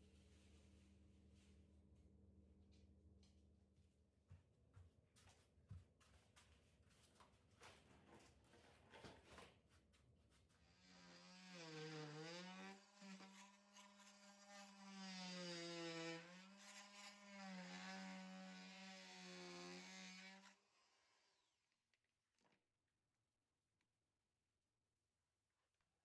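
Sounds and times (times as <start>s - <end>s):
electric power saw motor running: 10.8s - 20.4s.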